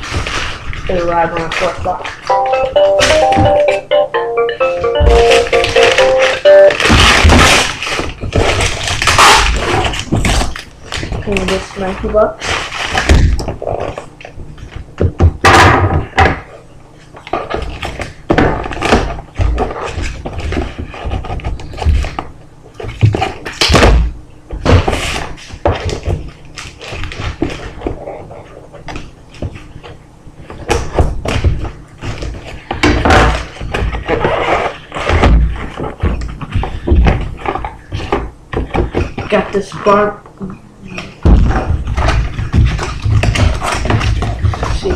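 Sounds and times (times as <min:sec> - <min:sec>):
items thudding and knocking: 0:04.8 - 0:12.2, 0:12.8 - 0:14.1, 0:14.8 - 0:16.5, 0:30.5 - 0:39.9, 0:41.0 - 0:44.9
packaging rustling: 0:05.2 - 0:15.0.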